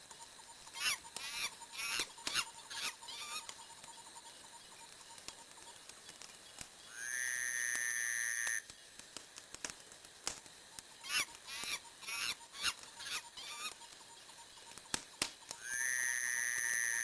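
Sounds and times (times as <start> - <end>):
wood fire crackling and popping: 0.0 - 6.9, 7.6 - 15.8
burning logs whistling: 0.0 - 17.0.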